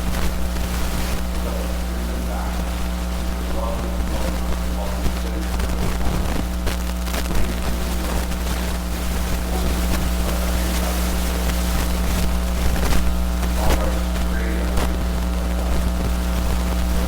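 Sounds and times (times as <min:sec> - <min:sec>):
electrical mains hum and hiss: 0:00.0 - 0:17.0
faint indistinct voice: 0:01.2 - 0:06.2, 0:09.4 - 0:12.0, 0:13.6 - 0:15.9.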